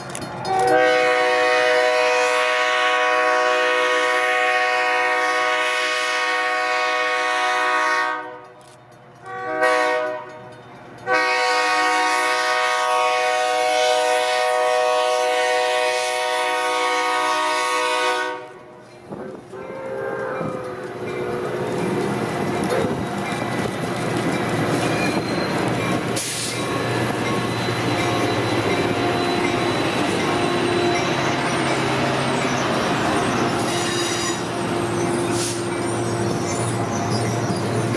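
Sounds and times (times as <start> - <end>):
train wheels rumbling on rail: 0.0 - 37.9
steam locomotive chime whistle: 0.4 - 8.6, 9.2 - 18.7, 24.7 - 37.9
wheel squeal: 24.6 - 37.9.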